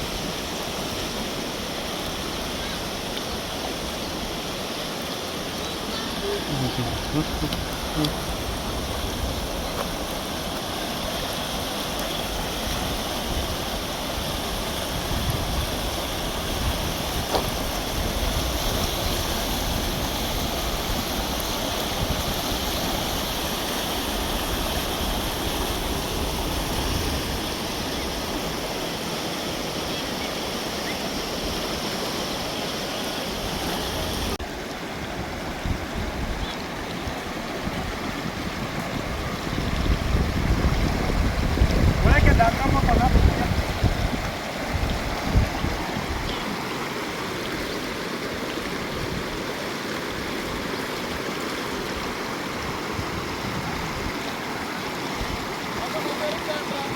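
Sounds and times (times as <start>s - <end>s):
river rushing: 0.0s - 56.9s
wind rumbling on microphone: 5.3s - 28.9s, 33.4s - 47.8s, 50.1s - 55.9s.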